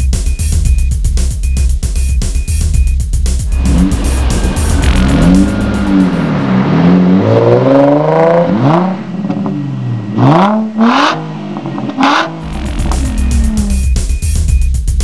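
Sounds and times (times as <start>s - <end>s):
car engine revving: 3.4s - 14.2s.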